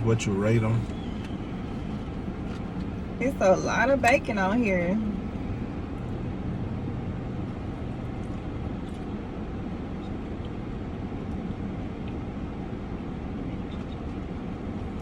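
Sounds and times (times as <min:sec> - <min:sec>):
car idling: 0:00.0 - 0:15.0.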